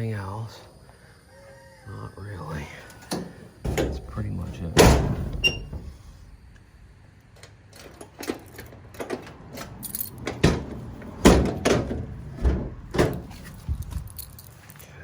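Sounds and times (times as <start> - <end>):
light clicks and rattles: 2.9 - 15.0
heavy metallic clunks: 3.1 - 14.3.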